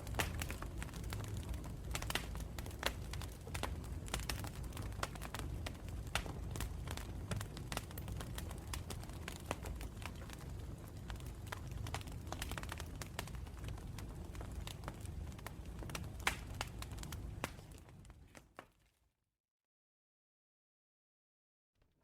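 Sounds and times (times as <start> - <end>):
low rumble of flames: 0.0 - 18.6
campfire crackling and popping: 0.0 - 18.8.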